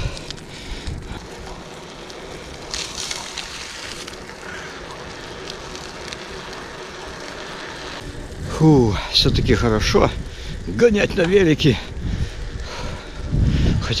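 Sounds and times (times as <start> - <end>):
bike tyres rolling on dirt: 0.0 - 14.0
wind on microphone: 8.0 - 14.0.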